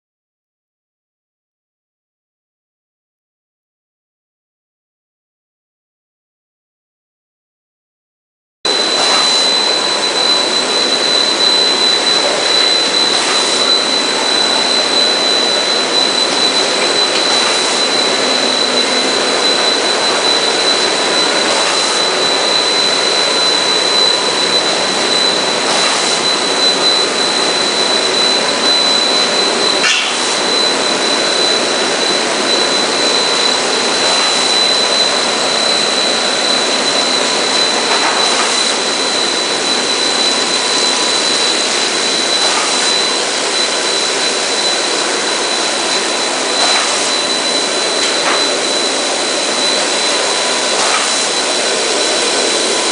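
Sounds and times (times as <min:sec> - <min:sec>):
high machine whine: 0:08.7 - 0:52.9
machinery hissing: 0:08.7 - 0:52.9.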